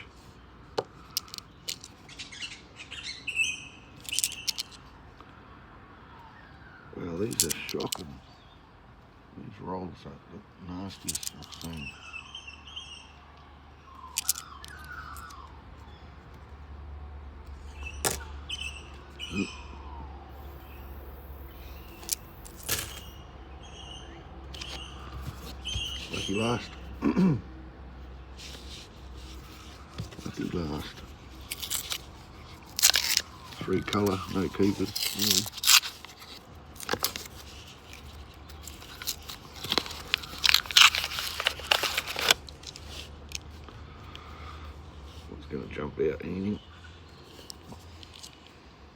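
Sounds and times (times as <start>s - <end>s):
birds chirping and whistling: 1.0s - 4.7s, 11.5s - 13.2s, 13.8s - 16.2s, 17.6s - 27.0s
coins and paper wrapper crinkling: 4.0s - 4.8s, 7.2s - 8.1s, 10.9s - 11.8s, 14.1s - 15.3s, 20.5s - 23.2s, 24.6s - 26.7s, 28.4s - 43.6s.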